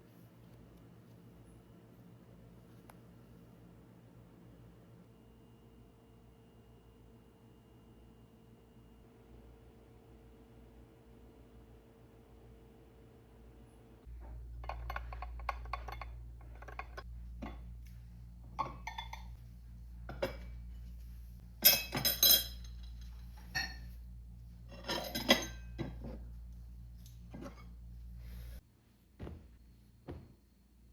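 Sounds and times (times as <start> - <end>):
low steady hum: 0.0 - 30.9
dishes and glassware clinking: 18.6 - 19.4, 21.6 - 23.9, 24.7 - 26.2.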